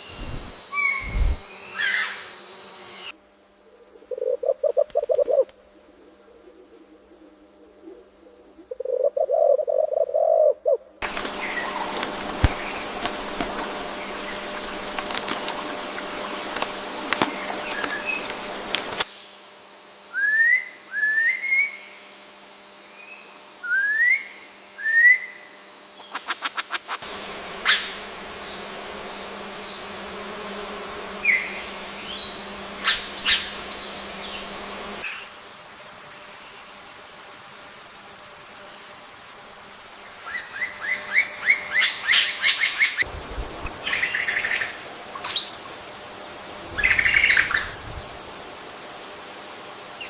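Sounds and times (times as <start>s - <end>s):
steady hiss: 0.0s - 1.6s, 26.4s - 50.0s
birds chirping: 3.6s - 19.1s, 26.0s - 35.2s.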